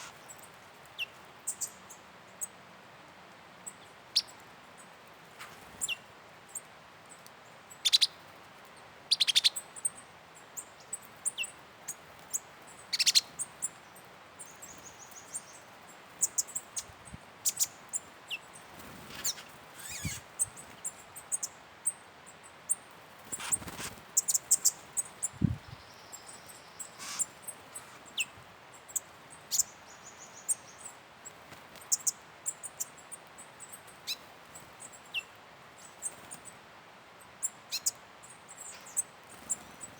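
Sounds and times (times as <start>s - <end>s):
faint background hiss: 0.0s - 39.9s
birds chirping and trilling: 10.6s - 13.8s, 14.4s - 21.5s, 22.7s - 30.9s, 37.7s - 39.9s.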